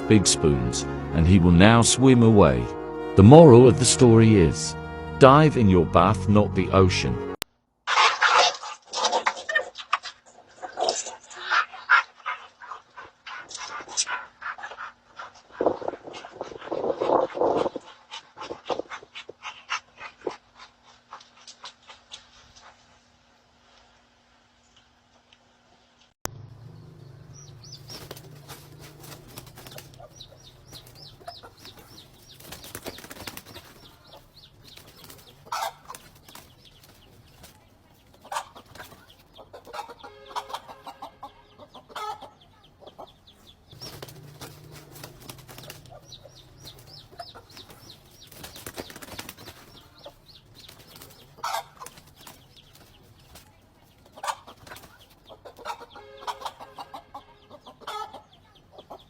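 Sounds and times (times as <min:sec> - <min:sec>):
bird calls: 0:26.3 - 0:59.0
wing flapping: 0:27.3 - 0:39.9, 0:43.7 - 0:55.8.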